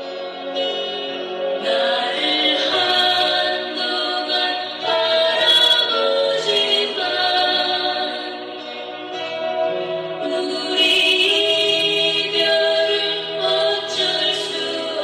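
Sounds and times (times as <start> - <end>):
woman singing a slow sad song: 10.2 - 15.0.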